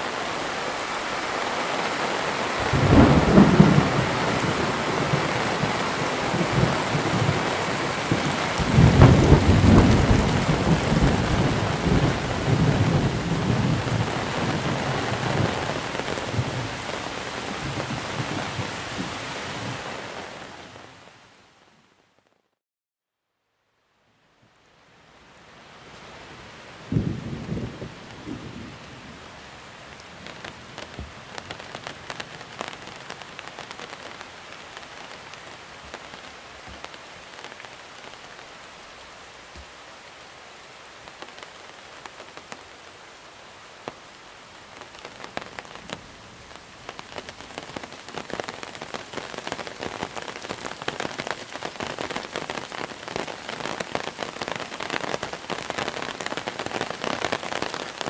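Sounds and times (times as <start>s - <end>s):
heavy rain falling: 0.0s - 21.6s, 25.2s - 58.0s
raindrops ticking on a surface: 29.9s - 38.5s, 41.0s - 43.0s, 43.8s - 58.0s.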